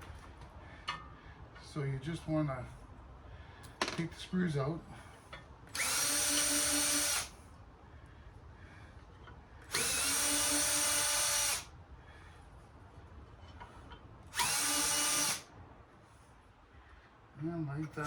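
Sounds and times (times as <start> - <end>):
power drill whining: 5.7 - 7.4, 9.7 - 11.7, 14.3 - 15.5.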